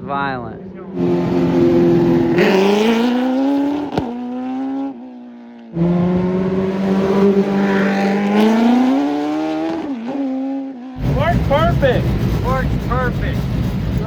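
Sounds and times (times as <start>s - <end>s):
race car engine at high revs: 0.5s - 14.0s.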